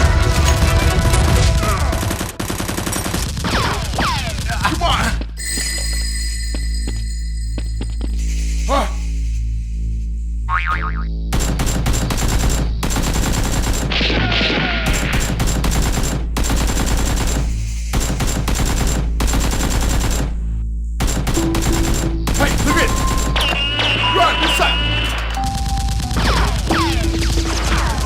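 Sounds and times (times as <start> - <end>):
background music: 0.0 - 3.8, 10.5 - 28.0
automatic gunfire: 0.1 - 4.8, 11.4 - 20.3, 21.0 - 23.3.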